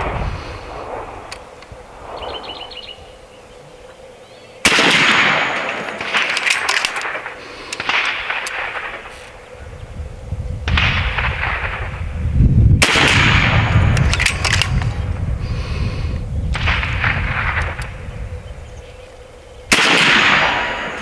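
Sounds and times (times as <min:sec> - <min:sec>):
air rifle shots: 0:04.6 - 0:09.6, 0:10.7 - 0:18.3, 0:19.7 - 0:21.0
sharp metallic clicks: 0:04.7 - 0:09.4, 0:12.8 - 0:15.2, 0:16.5 - 0:18.0.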